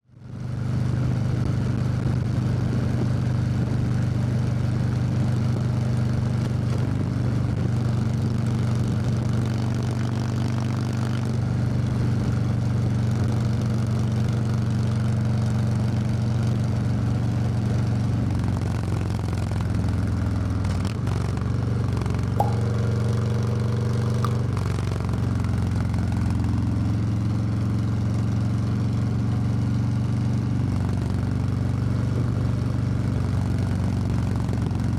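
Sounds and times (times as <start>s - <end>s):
short high-pitched tone: 22.4s - 23.0s
sharp click: 22.4s - 23.1s.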